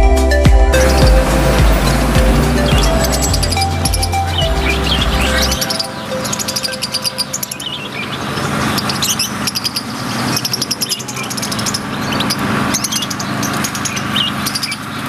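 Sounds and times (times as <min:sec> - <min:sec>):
steady low hum: 0:00.7 - 0:12.6
lovebirds chattering: 0:00.8 - 0:15.0.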